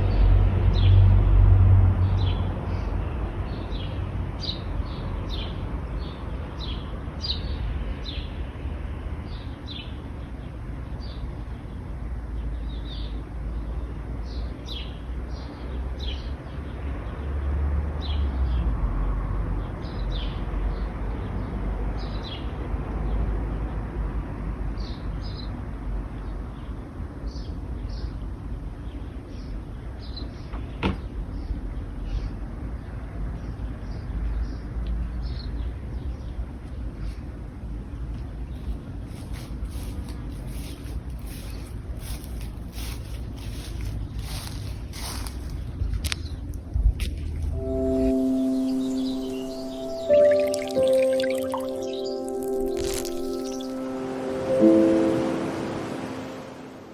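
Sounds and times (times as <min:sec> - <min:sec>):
low rumble of road traffic: 0:00.0 - 0:56.9
small birds chirping: 0:38.5 - 0:46.6, 0:47.6 - 0:54.2
vehicle passing: 0:47.5 - 0:56.9.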